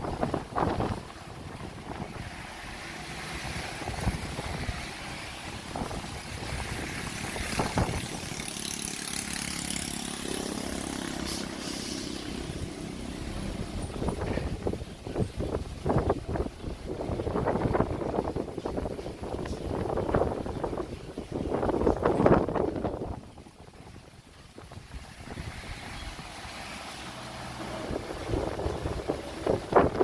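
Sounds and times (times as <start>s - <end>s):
wind on microphone: 0.0s - 30.0s
diesel engine running: 1.9s - 15.9s.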